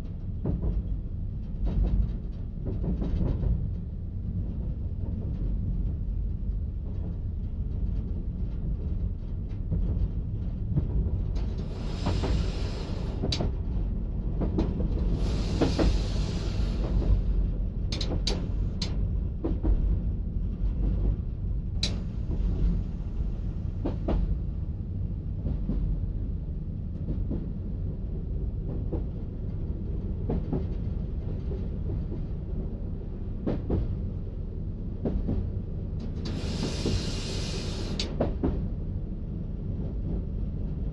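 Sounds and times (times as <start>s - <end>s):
train rumble: 0.0s - 40.9s
rushing hiss: 36.3s - 38.0s.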